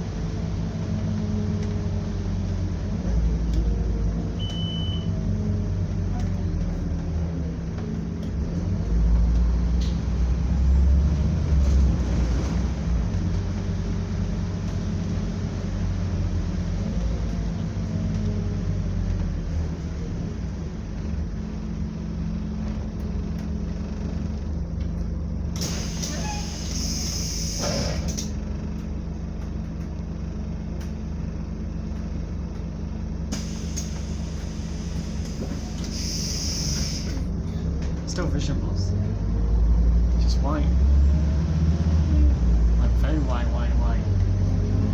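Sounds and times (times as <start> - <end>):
bus engine drone: 0.0 - 44.9
air hiss: 33.4 - 37.2.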